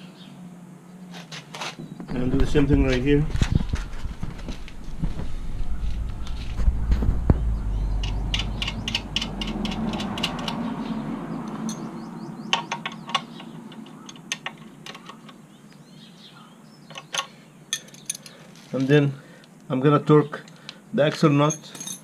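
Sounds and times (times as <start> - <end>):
low rumble: 2.1 - 12.4.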